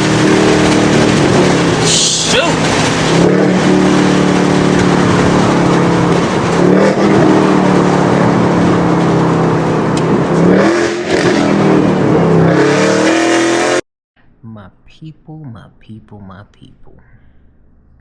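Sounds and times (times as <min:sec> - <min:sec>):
loud car engine revving: 0:00.0 - 0:13.8.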